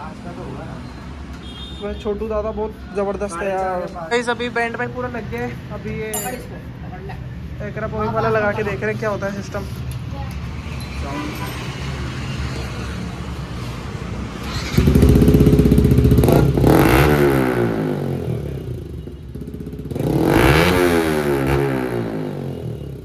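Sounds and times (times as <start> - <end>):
motorcycle engine revving: 8.6 - 23.0.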